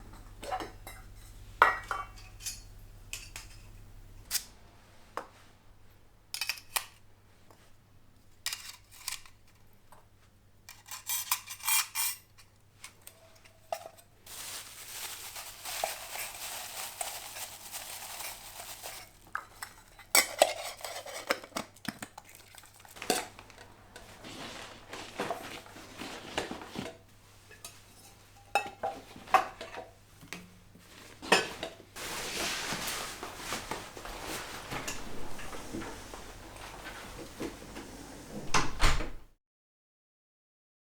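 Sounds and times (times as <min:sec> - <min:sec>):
metal cookware clinking: 0:00.0 - 0:04.5.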